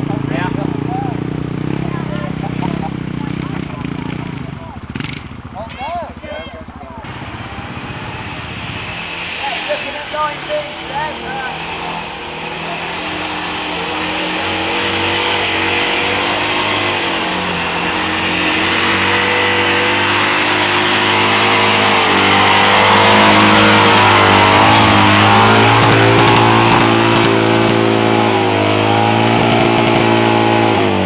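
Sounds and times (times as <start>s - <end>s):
small car engine at high revs: 7.0s - 31.0s.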